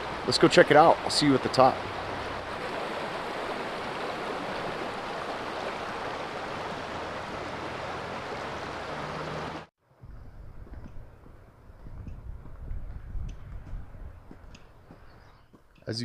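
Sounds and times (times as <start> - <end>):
creek water rushing: 0.0 - 9.7.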